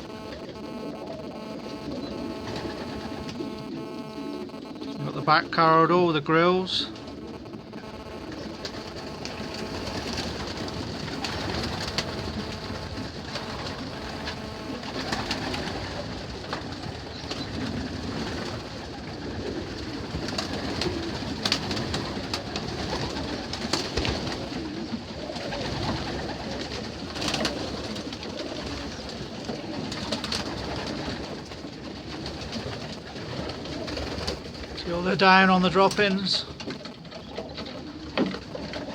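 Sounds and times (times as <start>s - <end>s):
sharp clicks: 0.0s - 15.7s
pigeons cooing: 0.0s - 34.8s, 36.5s - 38.9s.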